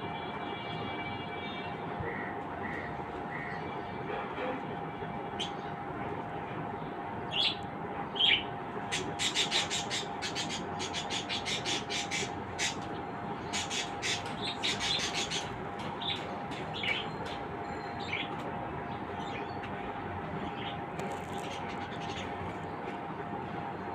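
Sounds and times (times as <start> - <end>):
small birds chirping: 8.2 - 18.3.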